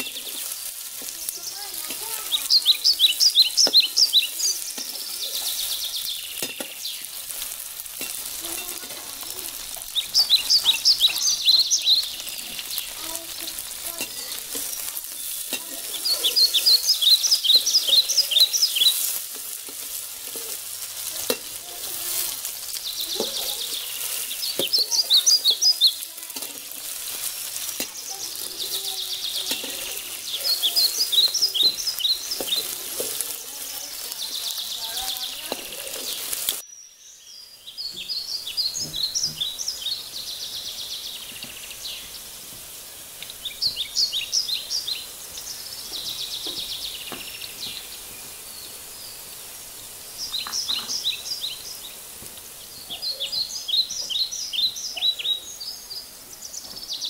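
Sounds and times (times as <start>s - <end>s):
high-pitched chirps: 0.0s - 7.4s, 8.0s - 20.6s, 21.2s - 36.6s
okra sizzling in oil: 0.0s - 57.0s
metal spatula scraping wok: 4.1s - 10.6s, 11.5s - 36.6s.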